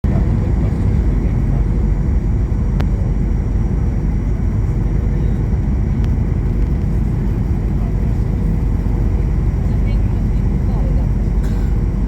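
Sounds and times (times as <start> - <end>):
airliner engines in flight: 0.0 - 12.0.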